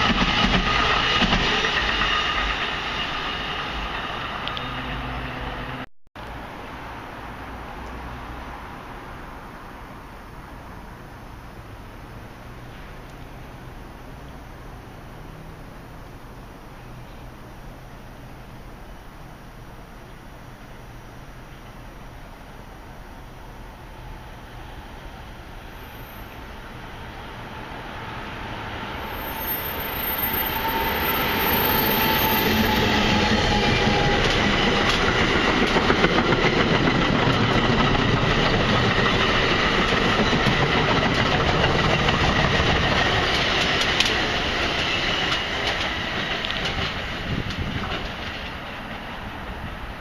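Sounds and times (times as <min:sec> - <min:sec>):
passenger train rumble: 0:00.0 - 0:50.0
wheels clacking over rail joints: 0:26.7 - 0:50.0.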